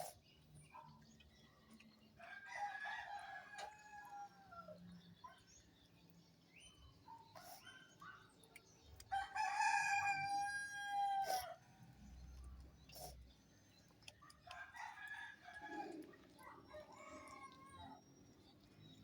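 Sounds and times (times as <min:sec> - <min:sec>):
rooster crowing: 0:09.2 - 0:11.5.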